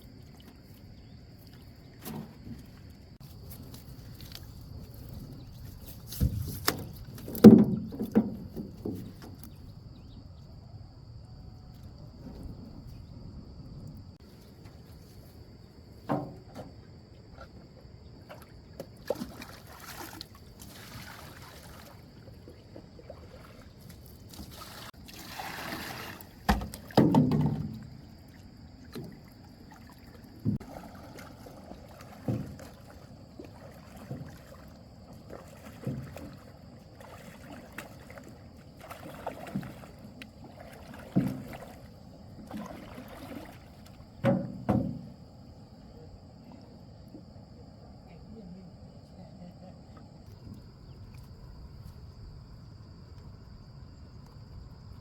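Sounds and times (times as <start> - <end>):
paddle splashes: 0.0 - 10.1, 16.0 - 47.6
splash and clatter: 1.4 - 9.6, 18.2 - 45.3
paddle knocking against hull: 5.1 - 10.0, 16.0 - 17.5, 25.6 - 45.6.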